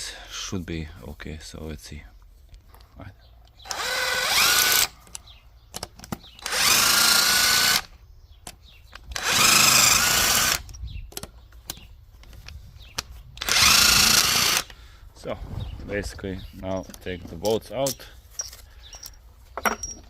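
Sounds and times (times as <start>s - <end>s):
power drill whining: 3.6s - 5.0s, 6.4s - 7.9s, 9.1s - 10.8s, 13.4s - 14.9s.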